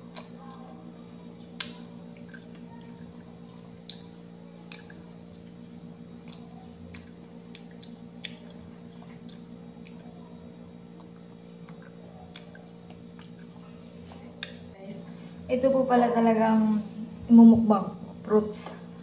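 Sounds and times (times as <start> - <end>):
steady low hum: 0.0 - 19.0
close-up chewing with wet smacks: 1.6 - 13.7, 14.3 - 14.7.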